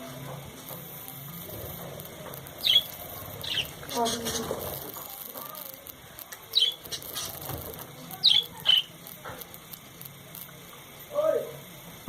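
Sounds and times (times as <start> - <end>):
birds chirping: 1.2 - 10.6.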